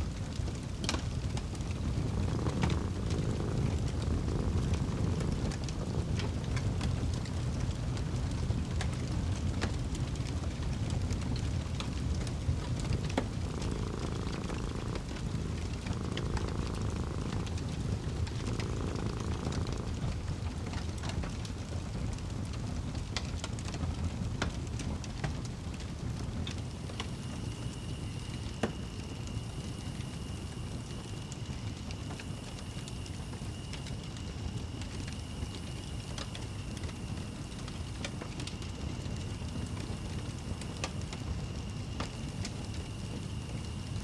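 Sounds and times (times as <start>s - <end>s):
low steady rumble: 0.0s - 21.4s
cat purring: 0.0s - 23.8s, 24.4s - 44.0s
wood fire crackling: 0.0s - 44.0s.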